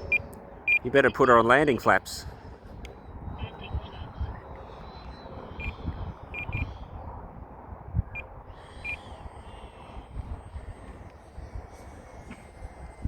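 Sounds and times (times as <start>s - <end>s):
faint thin high whine: 0.0s - 13.0s
wind on microphone: 0.0s - 13.0s.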